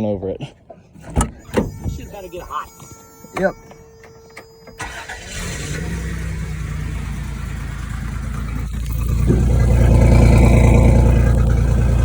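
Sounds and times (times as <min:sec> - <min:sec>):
vehicle engine idling and revving: 0:04.8 - 0:12.0.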